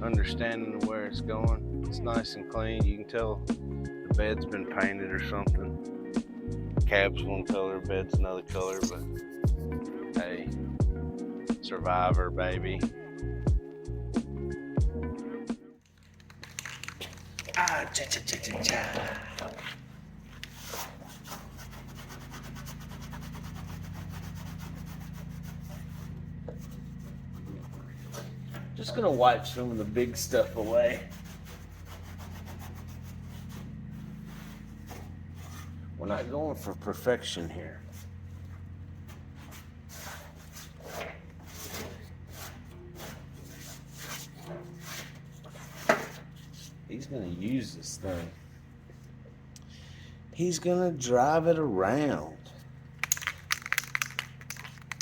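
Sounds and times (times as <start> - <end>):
steady low hum: 17.0 - 53.1
steel wool scrubbing painted metal: 17.9 - 48.5
wiping strokes on metal panel: 19.6 - 36.7, 37.8 - 47.0.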